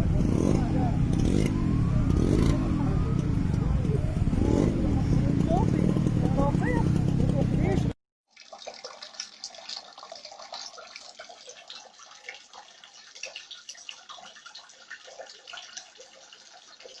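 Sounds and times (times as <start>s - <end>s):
water dripping and splashing: 8.3s - 17.0s.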